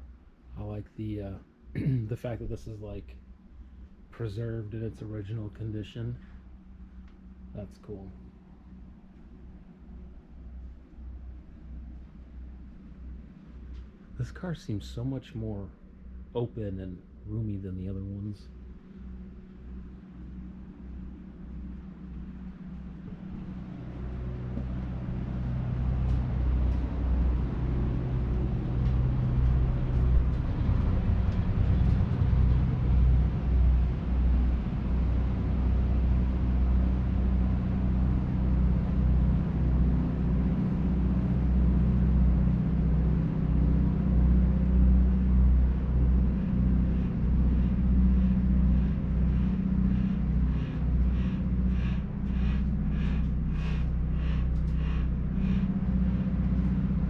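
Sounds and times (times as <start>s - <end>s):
low mechanical rumble with hum: 0.0s - 57.0s.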